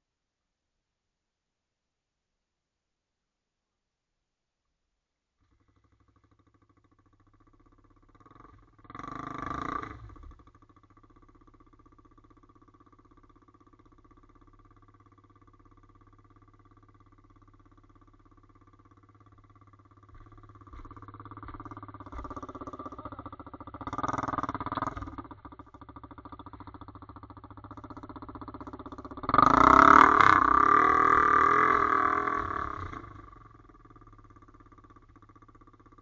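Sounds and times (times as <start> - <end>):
motorbike engine revving: 5.7 - 12.8, 18.8 - 36.0.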